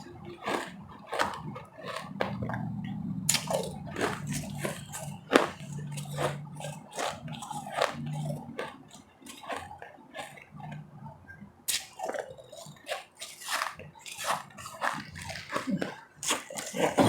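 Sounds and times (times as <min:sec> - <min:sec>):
ice being chewed: 0:00.0 - 0:17.0.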